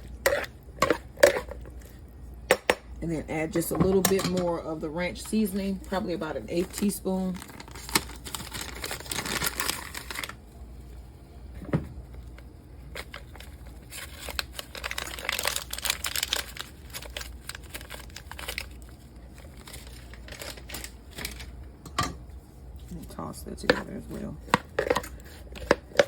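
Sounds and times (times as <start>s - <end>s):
crinkling and rustling: 5.2s - 10.9s, 11.5s - 21.7s.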